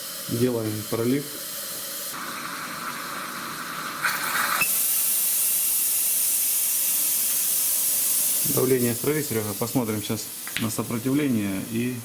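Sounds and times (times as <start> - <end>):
fuel injectors spraying hiss: 4.5 - 12.0.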